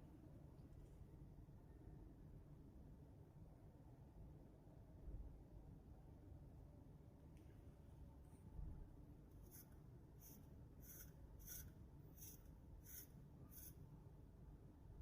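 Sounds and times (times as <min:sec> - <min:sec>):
faint short scratching strokes: 0:09.4 - 0:13.8.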